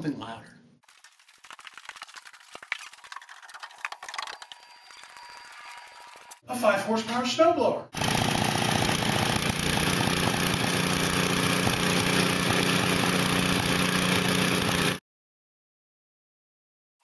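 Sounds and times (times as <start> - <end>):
snowblower engine running: 8.0 - 15.0.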